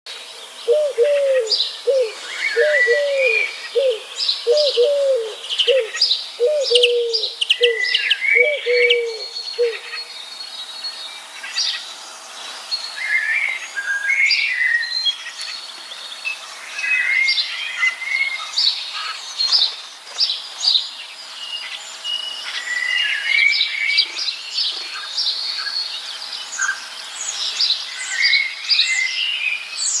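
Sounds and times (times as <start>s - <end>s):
birds chirping and trilling: 0.1s - 30.0s
lower bird call: 0.4s - 10.2s.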